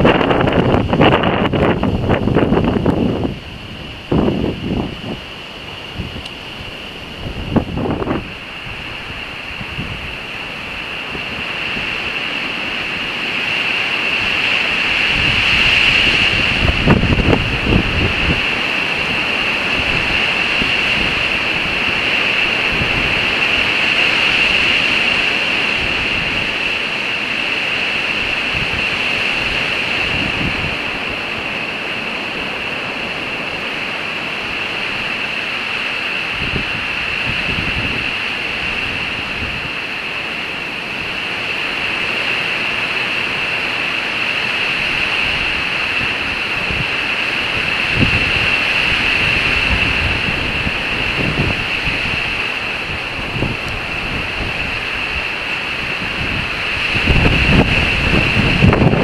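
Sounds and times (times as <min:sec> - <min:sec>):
strong wind through trees: 0:00.0 - 0:59.0
wind buffeting microphone: 0:00.0 - 0:59.0.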